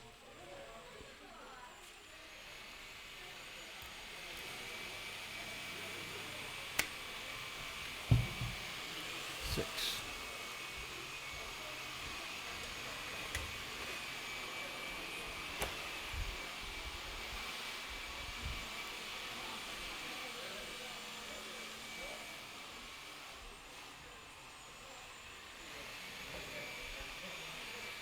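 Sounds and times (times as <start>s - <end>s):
distant jigsaws whirring: 4.0s - 16.0s
sharp knocks: 8.1s - 8.6s.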